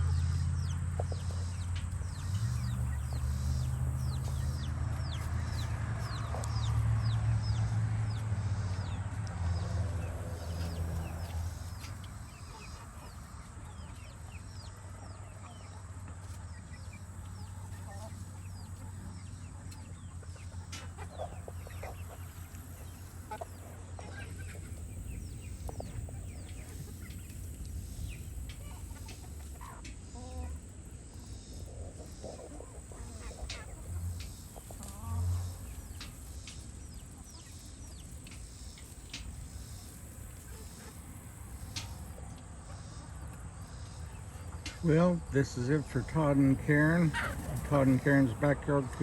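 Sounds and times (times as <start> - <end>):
hens clucking: 0.0 - 49.0.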